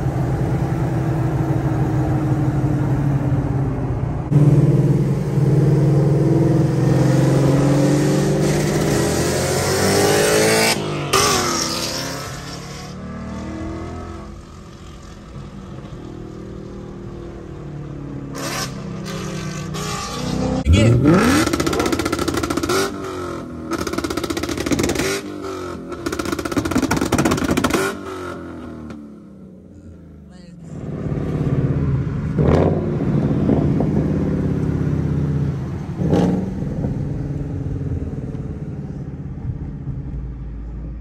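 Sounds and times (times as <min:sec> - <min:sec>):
car engine revving and idling: 0:00.0 - 0:41.0
exhaust pops: 0:21.3 - 0:22.9, 0:25.9 - 0:28.0.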